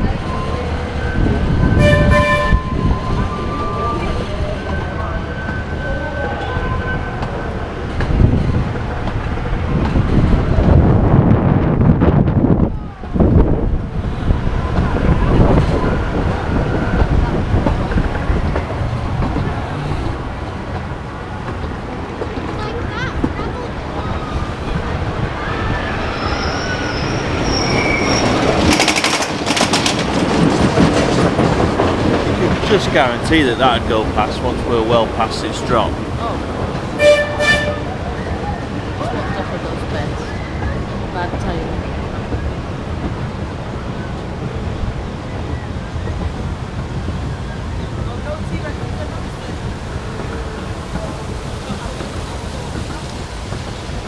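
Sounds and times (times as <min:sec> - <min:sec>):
roller coaster wheels squealing: 0:00.0 - 0:10.8, 0:14.0 - 0:20.8, 0:21.6 - 0:42.8
rail vehicle rumbling on track: 0:00.0 - 0:54.0
roller coaster rattling clatter: 0:00.0 - 0:54.0
short high horn tone: 0:01.8 - 0:02.9, 0:37.0 - 0:38.0.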